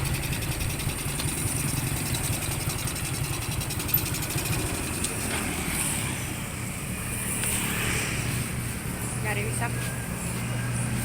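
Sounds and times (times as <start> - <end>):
motorcycle engine rumbling: 0.0 - 7.6
road and wind noise: 0.0 - 11.0.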